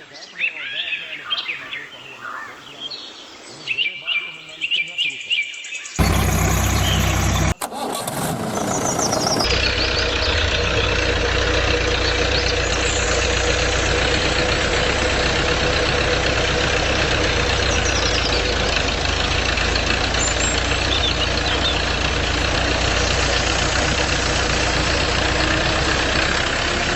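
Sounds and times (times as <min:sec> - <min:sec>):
engine starting and idling: 0:06.0 - 0:26.9.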